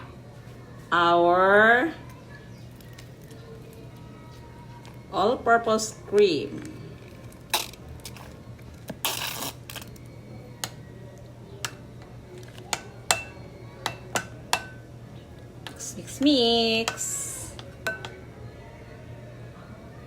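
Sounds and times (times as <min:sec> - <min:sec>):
spoon clinking against bowl: 0:12.7 - 0:14.8, 0:16.9 - 0:18.2.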